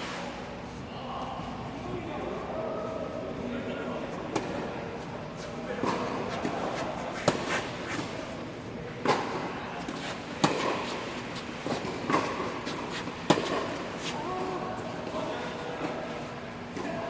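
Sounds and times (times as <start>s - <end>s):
tennis ball struck with rackets: 7.2s - 7.6s, 10.4s - 11.0s, 13.2s - 13.8s.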